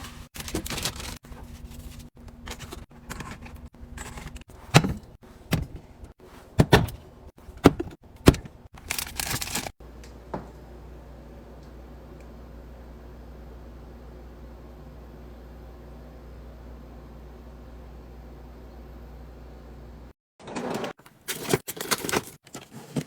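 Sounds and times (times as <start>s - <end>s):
packaging rustling: 0.0s - 2.8s, 8.8s - 9.8s, 21.1s - 23.0s
food containers knocking and clicking: 6.5s - 8.6s
faint steady hum: 7.0s - 20.1s.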